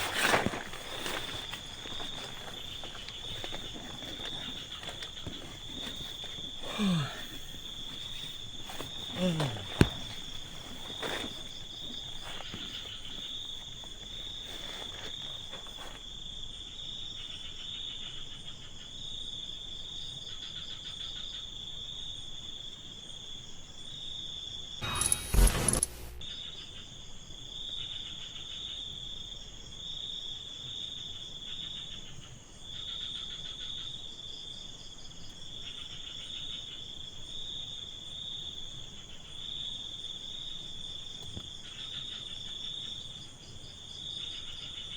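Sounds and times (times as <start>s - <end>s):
insects chirring trill: 0.0s - 18.0s
loud burst of noise: 24.8s - 26.2s.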